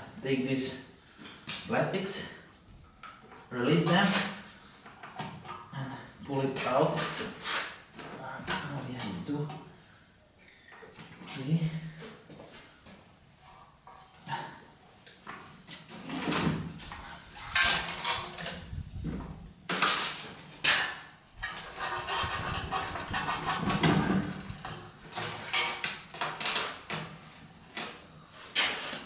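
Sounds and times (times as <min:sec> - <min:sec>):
hard plastic clattering and scraping: 0:15.8 - 0:29.0.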